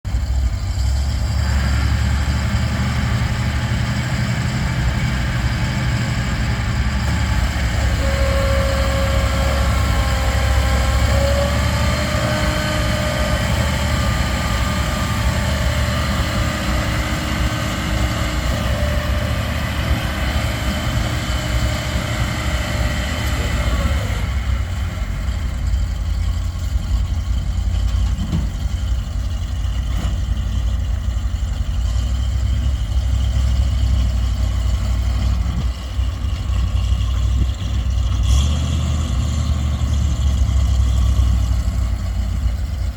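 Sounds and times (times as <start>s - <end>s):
truck engine idling: 0.0s - 42.9s
faint whining tone: 5.3s - 38.0s.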